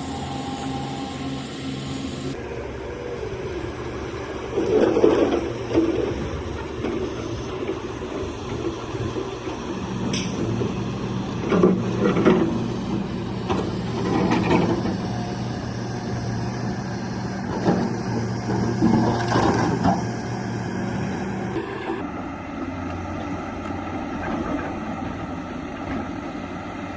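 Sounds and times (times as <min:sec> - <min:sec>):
excavator diesel engine running: 0:00.0 - 0:26.9
short sharp click: 0:10.1 - 0:10.5.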